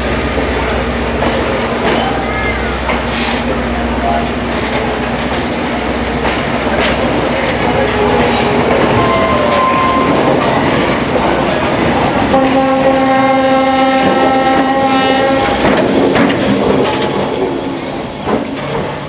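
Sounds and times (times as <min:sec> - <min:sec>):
wheels clacking over rail joints: 0:00.0 - 0:19.0
locomotive horn: 0:07.8 - 0:10.3, 0:12.3 - 0:15.8.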